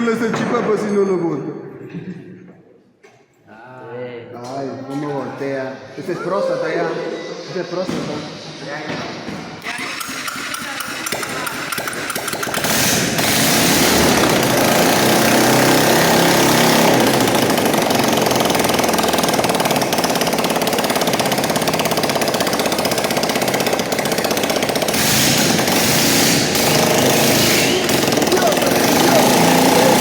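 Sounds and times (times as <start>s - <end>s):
motorcycle engine at high revs: 9.6s - 30.0s.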